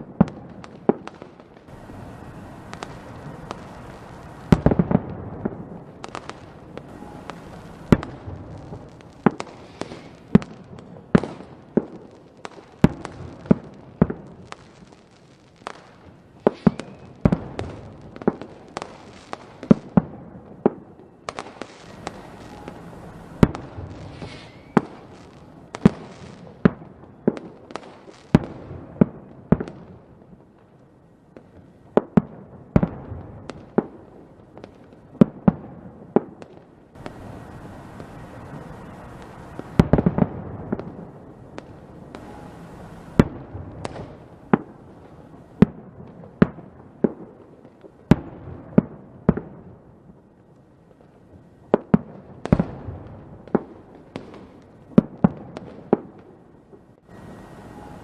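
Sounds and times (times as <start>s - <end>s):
fireworks banging: 0.0s - 30.1s, 31.3s - 49.7s
fireworks crackle and hiss: 0.0s - 58.0s.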